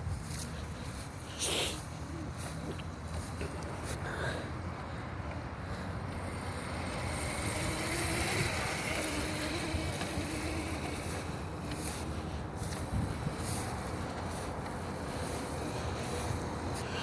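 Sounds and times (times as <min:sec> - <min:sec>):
electric motorbike whine: 0:00.0 - 0:17.0
wind on microphone: 0:12.6 - 0:14.0.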